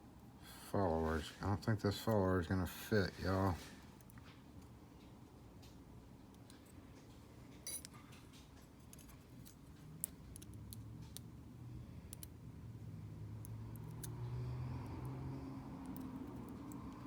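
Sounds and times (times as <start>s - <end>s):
metallic clicks of lock tools: 7.6s - 11.3s, 12.1s - 12.4s, 13.4s - 14.2s.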